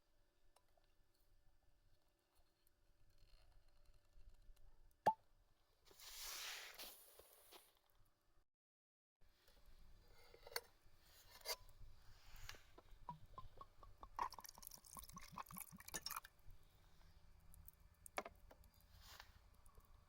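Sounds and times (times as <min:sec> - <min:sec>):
liquid poured into a glass: 0:14.0 - 0:16.4.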